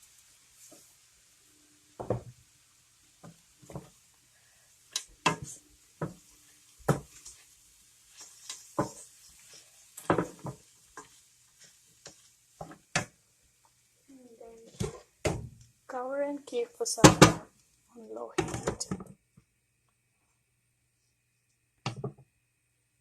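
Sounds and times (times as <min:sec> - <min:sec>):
spoon stirring rice in a pan: 0:00.0 - 0:01.3, 0:03.0 - 0:14.0, 0:14.6 - 0:15.4
spoon knocking and scraping pan: 0:02.0 - 0:02.4, 0:03.2 - 0:04.0, 0:04.9 - 0:07.5, 0:08.1 - 0:13.8, 0:14.6 - 0:15.6, 0:18.3 - 0:19.1.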